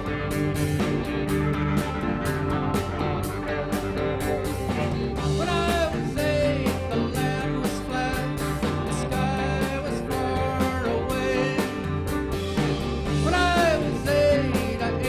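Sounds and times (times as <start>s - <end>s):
live rock band playing: 0.0s - 15.0s
sliding lead guitar line: 0.0s - 15.0s.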